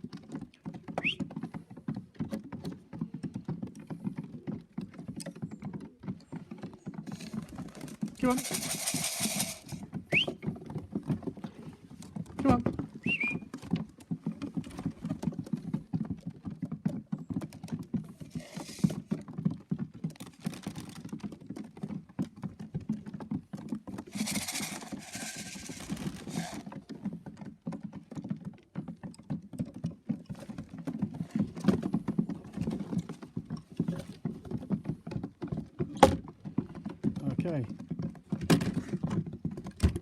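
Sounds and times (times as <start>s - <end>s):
pigeon feet pattering on boards: 0.0s - 40.0s
wings flapping: 7.1s - 10.3s, 24.1s - 26.7s.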